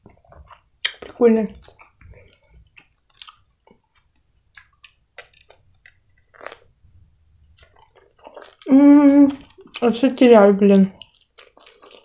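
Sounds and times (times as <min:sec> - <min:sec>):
person chewing: 0:00.0 - 0:06.8, 0:07.4 - 0:10.0, 0:10.7 - 0:12.0
wet mouth clicks: 0:00.8 - 0:06.6.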